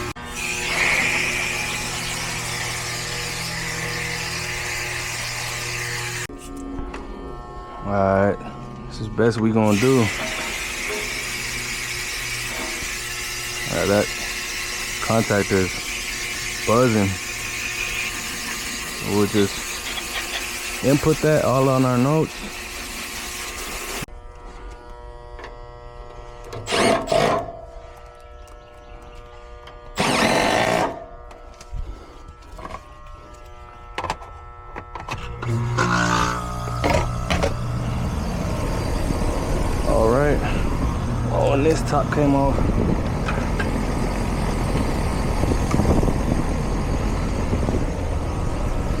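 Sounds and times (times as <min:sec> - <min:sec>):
air conditioner contactor buzzing: 0:00.0 - 0:49.0
air conditioning unit humming: 0:32.8 - 0:49.0.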